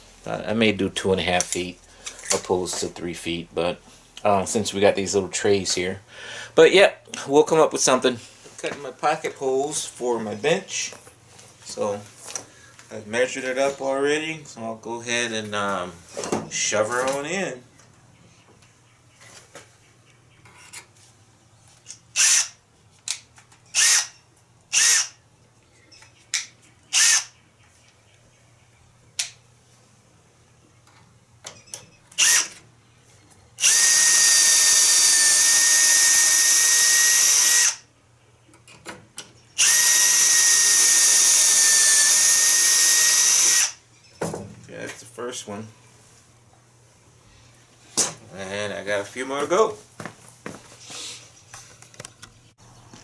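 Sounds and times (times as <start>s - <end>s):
drill whining: 22.2s - 22.6s, 23.7s - 25.2s, 26.9s - 27.3s, 32.2s - 32.6s, 33.6s - 37.8s, 39.6s - 43.8s.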